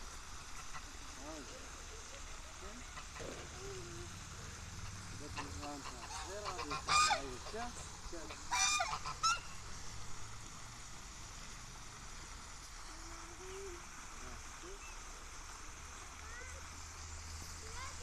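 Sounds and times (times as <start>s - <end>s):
geese honking: 2.6s - 9.7s.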